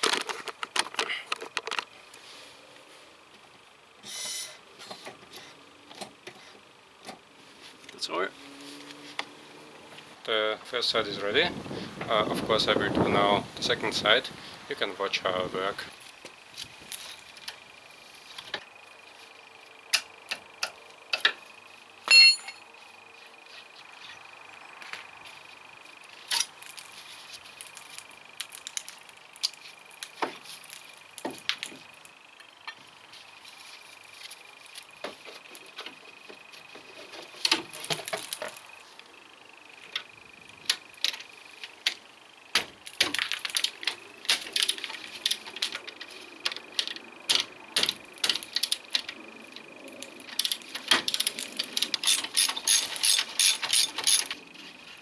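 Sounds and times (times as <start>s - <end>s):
ringing metallic strike: 22.1s - 22.6s
hand tools clinking on metal: 22.1s - 22.7s, 50.3s - 54.4s.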